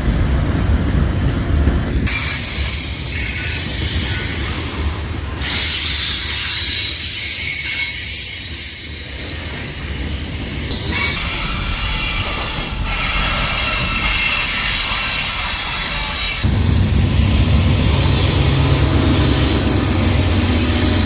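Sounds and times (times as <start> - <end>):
train wheels rumbling on rails: 0.0 - 21.0
wheels squealing: 16.4 - 21.0.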